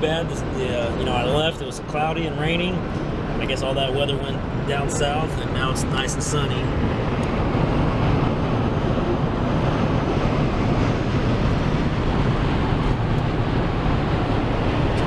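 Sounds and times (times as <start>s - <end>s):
low engine hum: 0.0s - 15.0s
tyre and wind rush: 4.3s - 15.0s.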